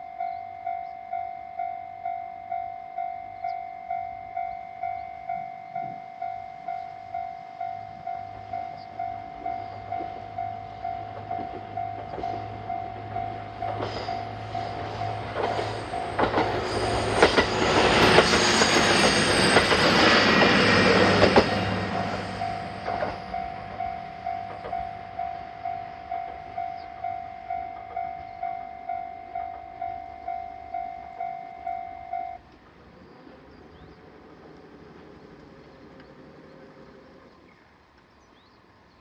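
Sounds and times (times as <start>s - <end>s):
crossing warning bell dinging: 0.0s - 32.6s
train wheels knocking over rail joints: 10.0s - 25.2s.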